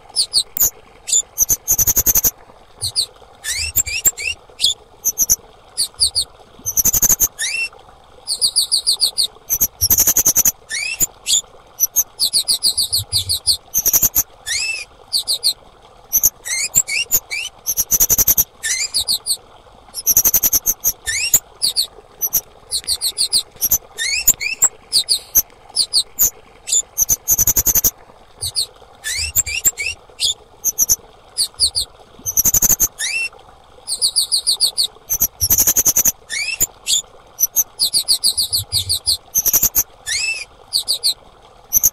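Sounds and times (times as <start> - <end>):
insect high chirps and trills: 0.2 - 7.2, 9.5 - 11.1, 11.8 - 12.0, 12.6 - 15.5, 16.1 - 19.2, 20.0 - 26.3, 27.0 - 29.9, 30.6 - 32.8, 39.4 - 40.9.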